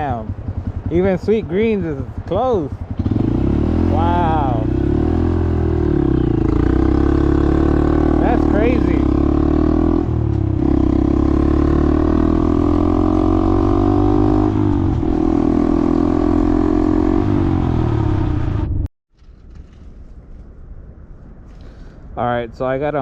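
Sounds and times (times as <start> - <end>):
vehicle engine accelerating: 2.1 - 18.9
faint low rumble: 17.9 - 23.0.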